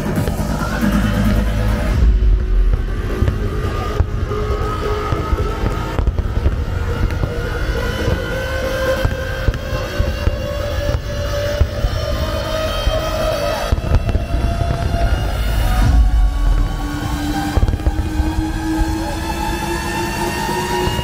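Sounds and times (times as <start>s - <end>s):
fireworks rumble and crackle: 0.0s - 21.0s
music with long held notes: 0.0s - 21.0s.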